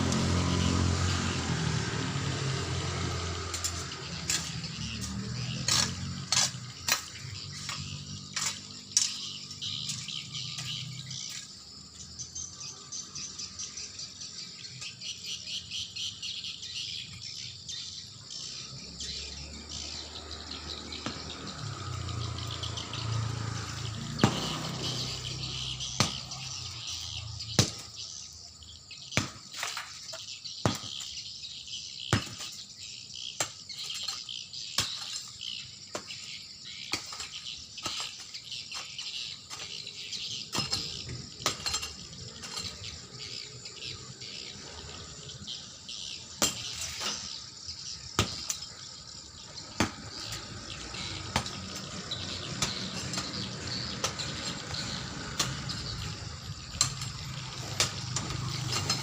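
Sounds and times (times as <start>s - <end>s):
insects chirring: 0.0s - 59.0s
sharp knocks: 24.2s - 24.8s.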